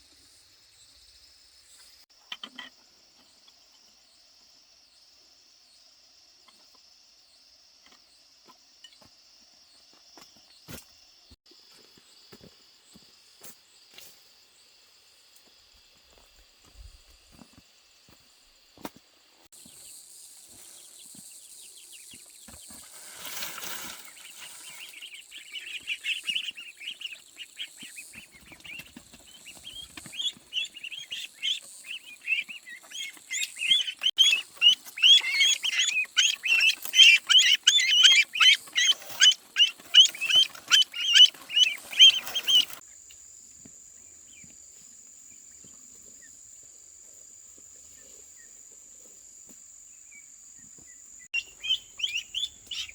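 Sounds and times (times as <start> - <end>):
chicks peeping: 23.6 - 42.8.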